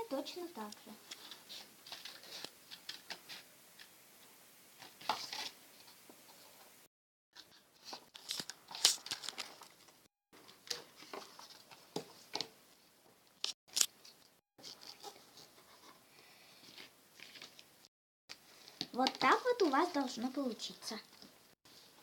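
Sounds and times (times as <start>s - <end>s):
paper rustling: 1.1s - 3.9s, 4.8s - 6.5s, 7.4s - 12.4s.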